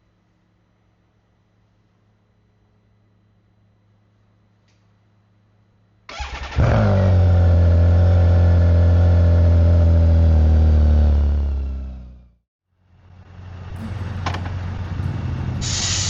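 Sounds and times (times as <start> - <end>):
motorcycle engine starting and idling: 6.1 - 10.8, 13.0 - 16.0.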